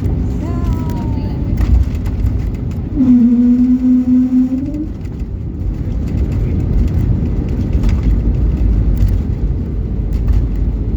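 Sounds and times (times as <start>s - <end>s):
airliner low rumble: 0.0s - 10.9s
held tone: 3.0s - 4.9s.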